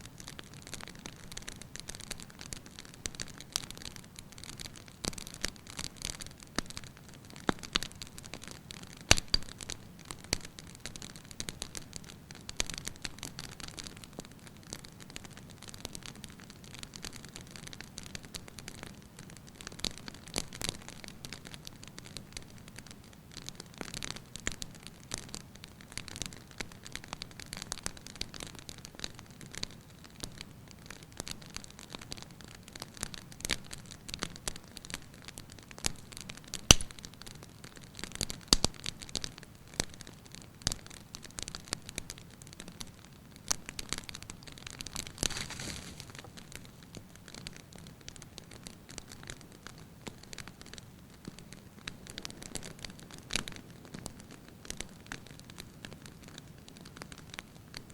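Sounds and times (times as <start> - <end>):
firewood crackling and popping: 0.0 - 57.9
soft hiss of flame: 32.5 - 57.6.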